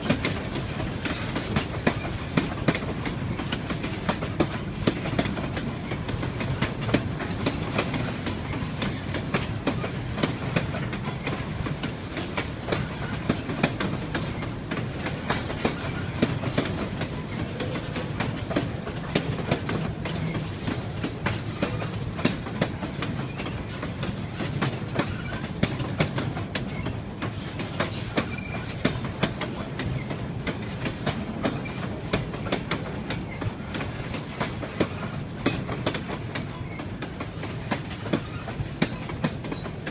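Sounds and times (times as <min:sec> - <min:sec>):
train rumbling on track: 0:00.0 - 0:39.9
wheels clicking over rails: 0:00.0 - 0:39.9.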